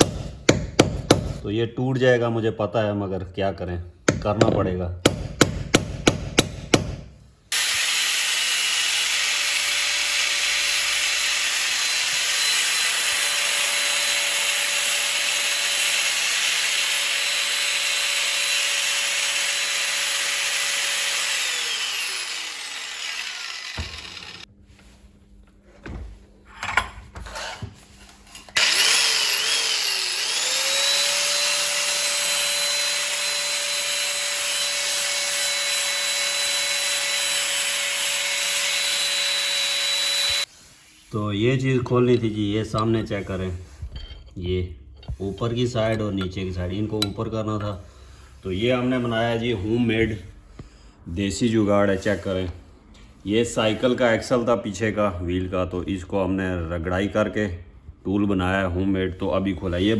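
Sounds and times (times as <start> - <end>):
electric grinder grinding steel: 7.5 - 24.5, 28.5 - 40.5.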